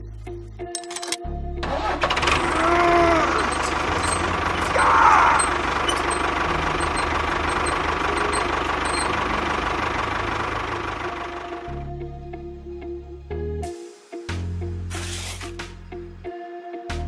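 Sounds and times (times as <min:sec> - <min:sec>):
model tractor engine pulsing: 0:01.6 - 0:11.8.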